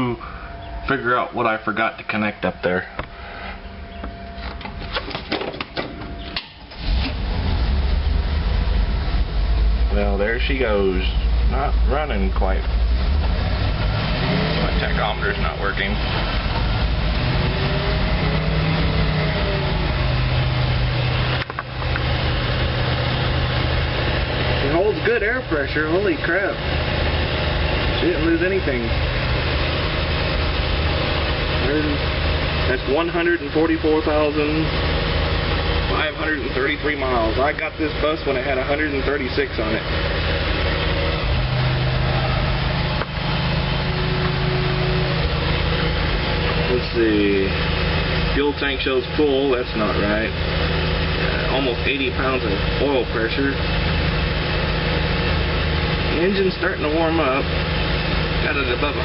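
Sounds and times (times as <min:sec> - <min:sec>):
bus engine running: 0:00.0 - 0:59.0
bus engine fast idle: 0:05.6 - 0:08.2.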